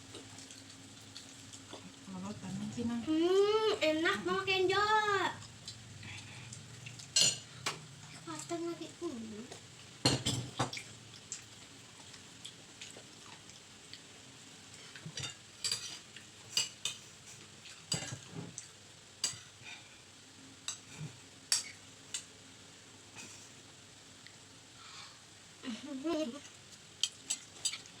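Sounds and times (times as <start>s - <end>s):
faint sizzle: 0.0s - 28.0s.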